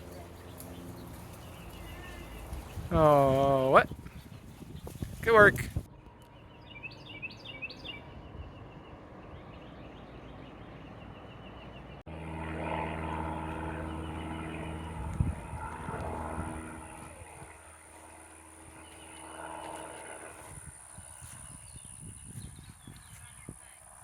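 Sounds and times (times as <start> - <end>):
engine drone: 5.9 - 22.1
low rumble: 12.1 - 23.1.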